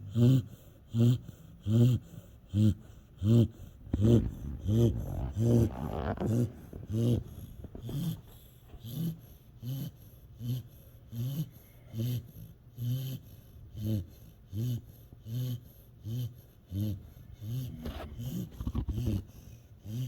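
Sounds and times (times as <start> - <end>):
dog snoring: 0.0 - 20.0.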